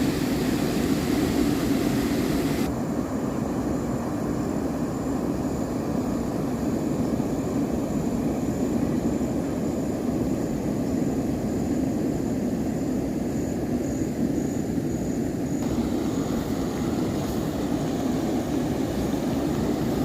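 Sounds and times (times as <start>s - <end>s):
motor drone with high whine: 0.0s - 2.7s, 15.6s - 20.0s.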